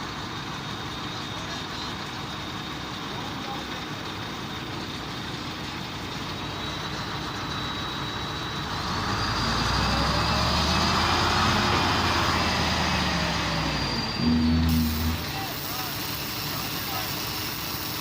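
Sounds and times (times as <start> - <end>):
diesel engine revving: 5.4 - 18.0
high whine: 12.9 - 16.3.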